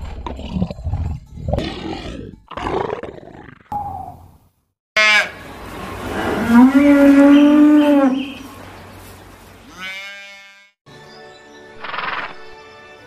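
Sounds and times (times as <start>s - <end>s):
background music: 10.9s - 13.0s.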